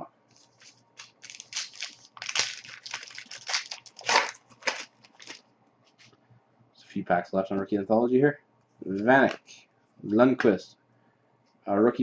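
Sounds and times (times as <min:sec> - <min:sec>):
foil wrapper crinkling and tearing: 0:00.4 - 0:05.4.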